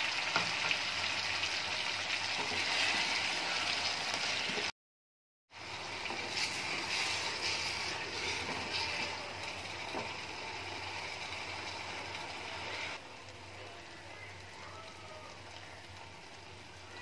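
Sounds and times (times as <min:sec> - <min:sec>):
curry sizzling in a pan: 0:00.0 - 0:04.7, 0:05.5 - 0:17.0
wooden spatula stirring: 0:06.0 - 0:10.2.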